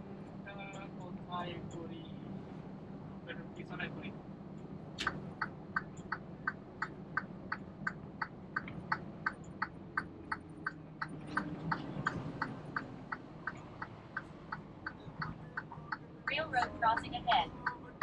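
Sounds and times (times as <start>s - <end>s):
truck engine idling: 2.0s - 18.0s
turn signal clicking: 5.0s - 18.0s.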